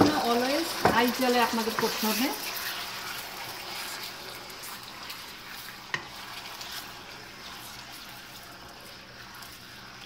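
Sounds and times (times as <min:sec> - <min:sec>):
chicken sizzling in hot oil: 0:00.0 - 0:10.0
spatula tap: 0:00.8 - 0:01.1, 0:05.9 - 0:06.1.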